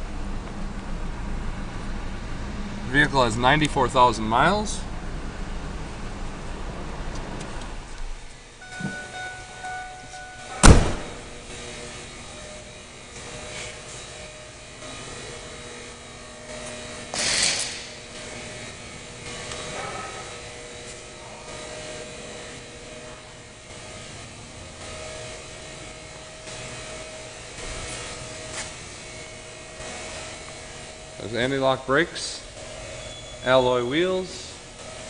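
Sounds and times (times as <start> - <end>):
loud sharp slam: 10.5 - 11.4, 17.1 - 18.0.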